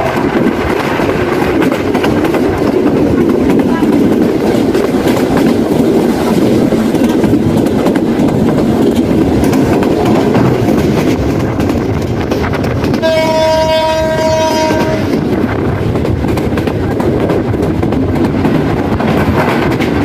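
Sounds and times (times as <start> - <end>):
train wheels on rails: 0.0 - 20.0
train horn: 12.9 - 15.3.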